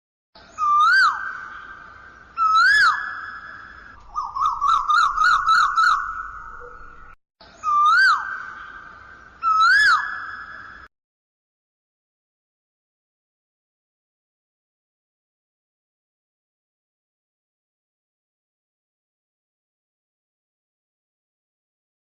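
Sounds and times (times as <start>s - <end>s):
bird whistled calls: 0.5s - 10.9s.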